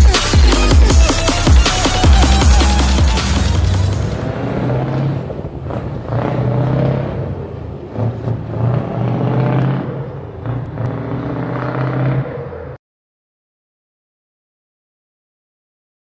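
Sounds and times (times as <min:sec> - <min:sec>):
truck engine running: 0:00.0 - 0:06.3.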